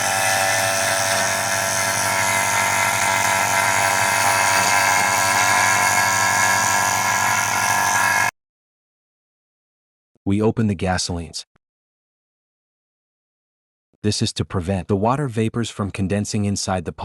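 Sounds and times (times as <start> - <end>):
vacuum pump running: 0.0 - 8.3.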